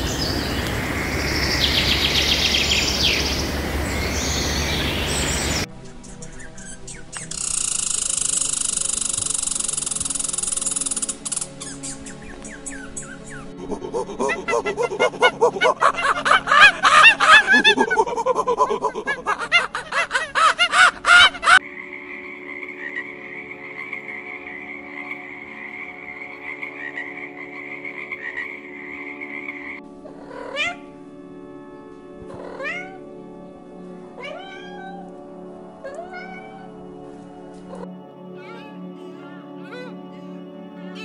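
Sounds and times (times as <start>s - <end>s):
steady high drone: 0.0s - 5.7s
faint background music: 1.2s - 41.0s
chorus of pulsing animal calls: 7.2s - 30.8s.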